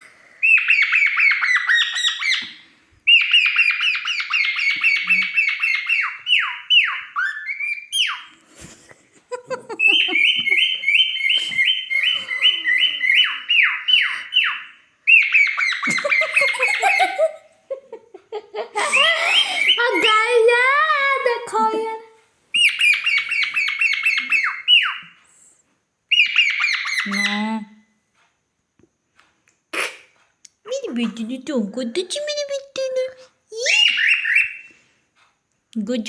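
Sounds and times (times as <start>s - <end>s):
cockatiel chirping: 0.4s - 8.3s, 9.7s - 17.3s, 19.2s - 20.2s, 22.5s - 25.2s, 26.1s - 27.4s, 33.6s - 34.8s.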